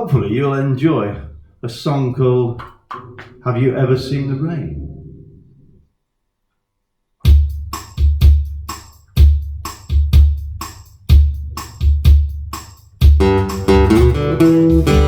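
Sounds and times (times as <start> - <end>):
kick drum thumps: 7.2 - 15.0.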